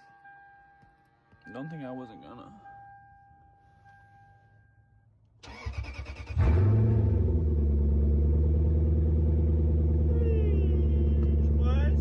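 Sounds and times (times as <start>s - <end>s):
car engine revving and idling: 6.0s - 12.0s.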